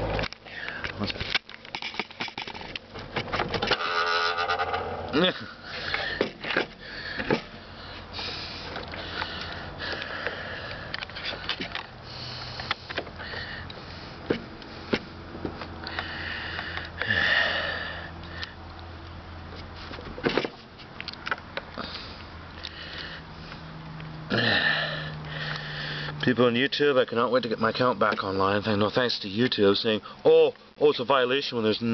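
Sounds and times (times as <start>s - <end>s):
person breathing and sniffing: 5.5s - 15.0s, 21.8s - 26.2s.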